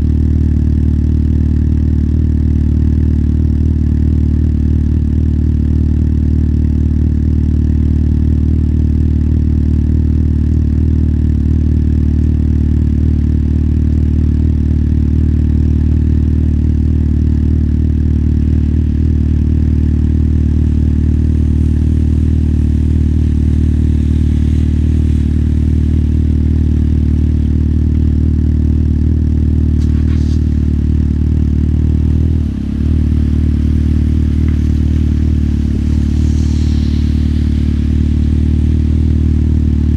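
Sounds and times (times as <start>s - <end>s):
motorcycle engine running: 0.0s - 39.9s
short sharp sound: 29.8s - 39.9s.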